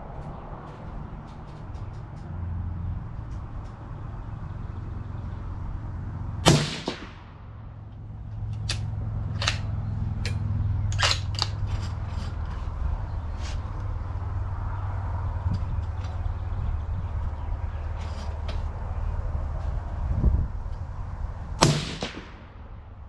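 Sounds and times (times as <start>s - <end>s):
steady low rumble: 0.0s - 23.0s
rifle shot echoing: 6.4s - 7.5s, 21.6s - 22.6s.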